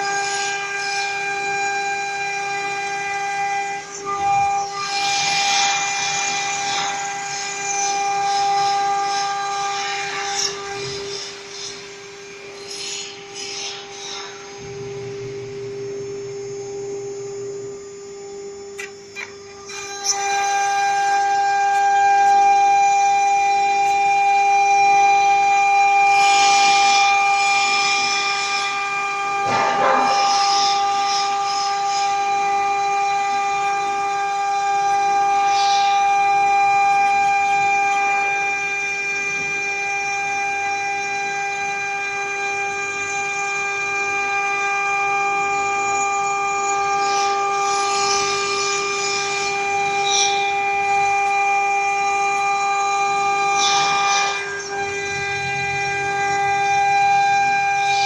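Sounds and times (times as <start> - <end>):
router spindle whine: 0.0 - 58.0
cutting hiss: 4.6 - 15.3, 26.1 - 38.4.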